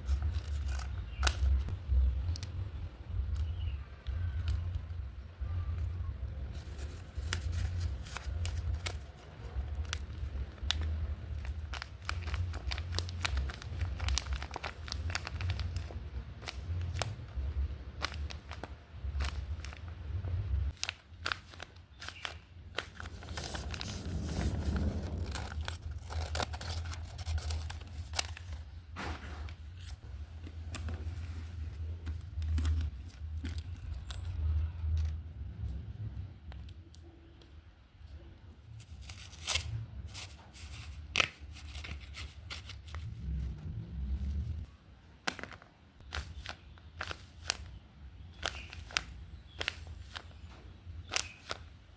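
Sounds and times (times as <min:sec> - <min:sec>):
paper crinkling and tearing: 0:00.0 - 0:02.4, 0:06.5 - 0:19.9, 0:20.7 - 0:35.1, 0:38.8 - 0:43.5, 0:44.5 - 0:51.7
low rumble: 0:23.0 - 0:28.4, 0:42.9 - 0:44.8.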